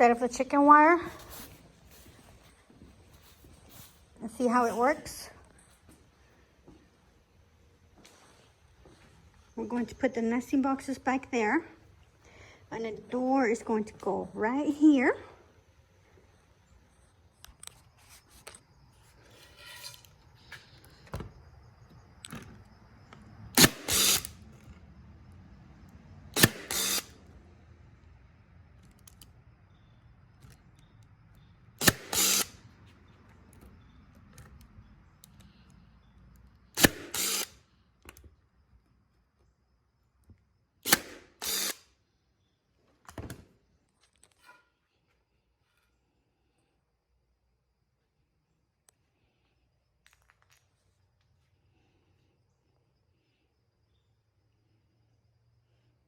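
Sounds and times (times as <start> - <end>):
quiet handling sounds: 0.0 - 10.1, 48.8 - 51.6
cordless drill driving screws: 23.6 - 24.4, 26.4 - 27.2, 31.8 - 32.6, 36.8 - 37.6, 40.8 - 41.8.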